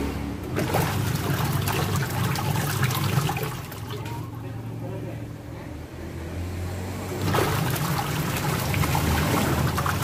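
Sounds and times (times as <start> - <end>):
water splashing in washing machine: 0.4 - 4.4, 7.0 - 10.0.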